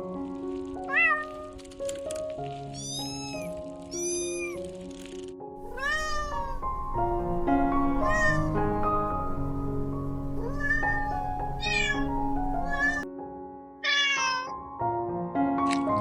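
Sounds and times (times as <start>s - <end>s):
background music: 0.0s - 16.0s
kitten meowing: 0.9s - 1.6s, 2.7s - 4.6s, 5.6s - 9.5s, 10.3s - 13.1s, 13.8s - 14.5s.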